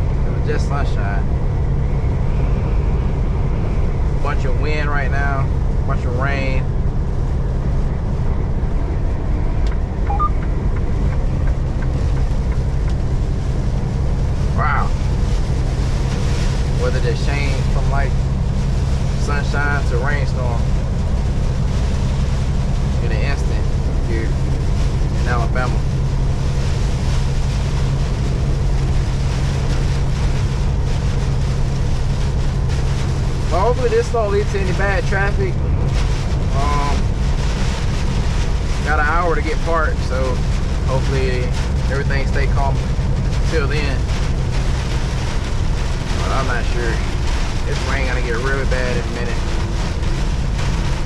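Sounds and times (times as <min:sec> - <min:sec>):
rain on truck cab: 0:00.0 - 0:51.0
truck engine and road drone: 0:00.0 - 0:51.0
wind on truck cab: 0:00.0 - 0:51.0.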